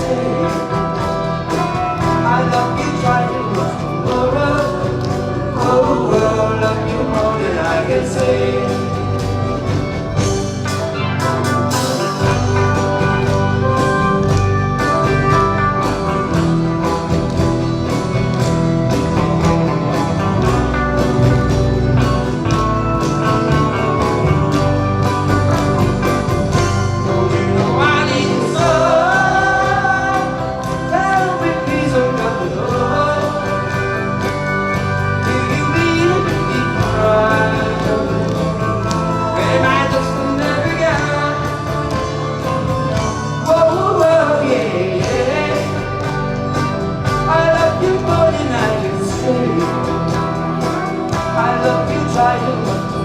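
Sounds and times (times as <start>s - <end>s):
person singing: 0.0s - 13.8s, 26.5s - 53.0s
live band playing pop song: 0.0s - 53.0s.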